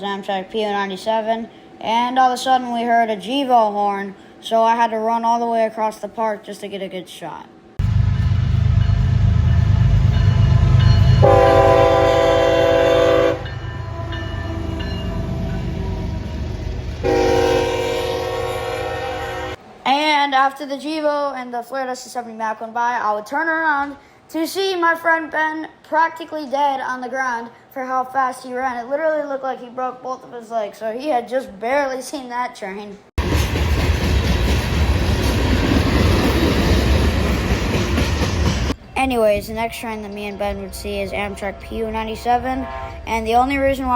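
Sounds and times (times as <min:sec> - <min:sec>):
train engine and wheel rumble: 0:07.8 - 0:19.8, 0:33.2 - 0:43.9
locomotive air horn: 0:11.2 - 0:19.6, 0:42.6 - 0:43.0.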